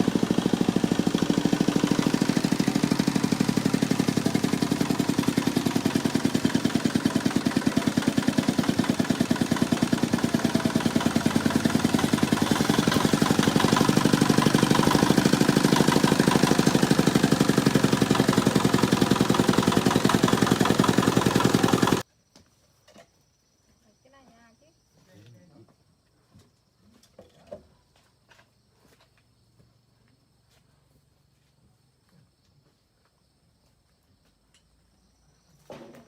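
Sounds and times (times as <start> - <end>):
small engine chugging: 0.0 - 22.0.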